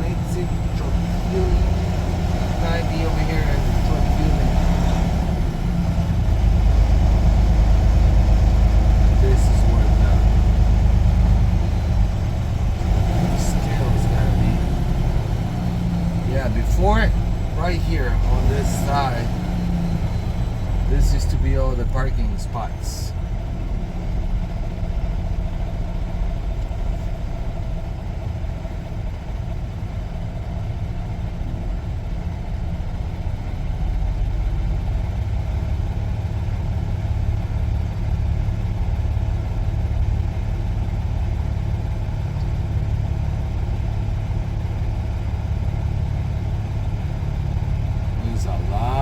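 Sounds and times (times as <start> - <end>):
truck diesel engine rumbling: 0.0 - 49.0.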